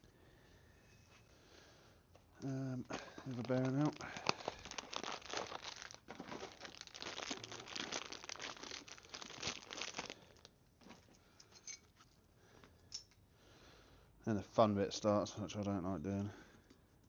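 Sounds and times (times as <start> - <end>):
crinkling and rustling: 2.4 - 12.2.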